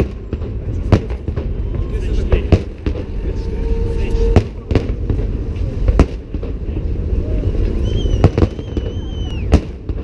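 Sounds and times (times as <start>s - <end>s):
firework bangs: 0.0s - 10.0s
low rumble: 0.0s - 10.0s
high firework whistle: 1.5s - 5.0s, 7.2s - 9.9s.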